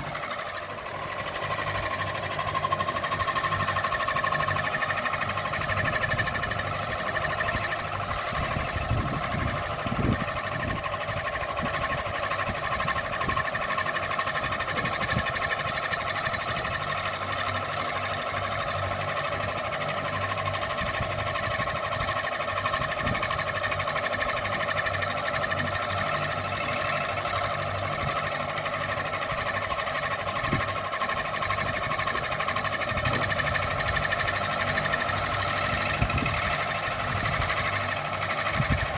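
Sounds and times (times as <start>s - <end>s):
ceiling fan whine and hum: 4.8s - 13.7s, 18.5s - 38.9s.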